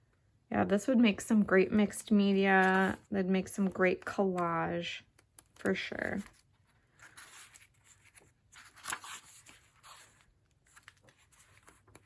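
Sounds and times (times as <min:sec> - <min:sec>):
book pages turning: 0:02.6 - 0:12.0.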